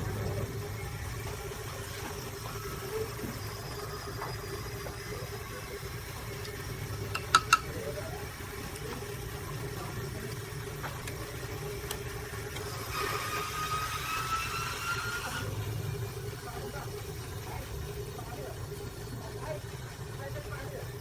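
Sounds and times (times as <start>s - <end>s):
machine humming: 0.0s - 21.0s
sharp clicks: 6.4s - 7.7s.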